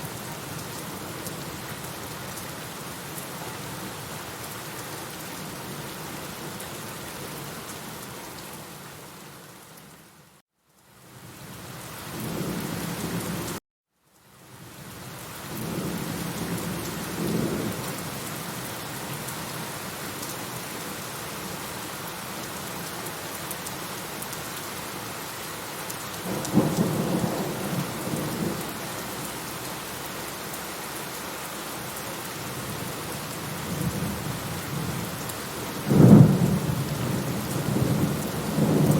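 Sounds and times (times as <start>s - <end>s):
steady rain: 0.0s - 38.9s
rolling thunder: 35.8s - 38.9s.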